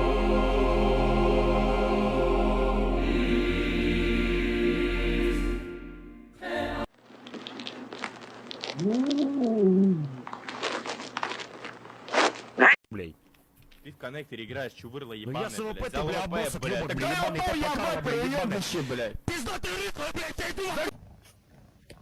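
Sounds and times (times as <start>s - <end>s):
choir music: 0.0s - 6.9s.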